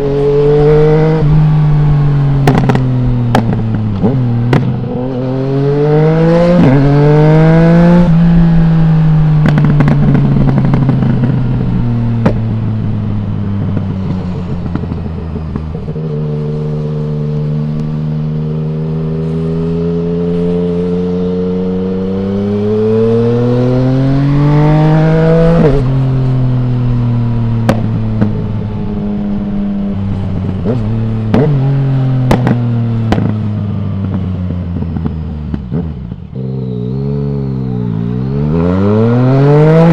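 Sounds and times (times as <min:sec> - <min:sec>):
motorcycle engine revving: 0:00.0 - 0:39.9
exhaust pops and crackles: 0:02.4 - 0:04.8, 0:09.4 - 0:11.6, 0:12.2 - 0:12.5, 0:13.6 - 0:16.0, 0:27.6 - 0:28.4, 0:32.2 - 0:33.4.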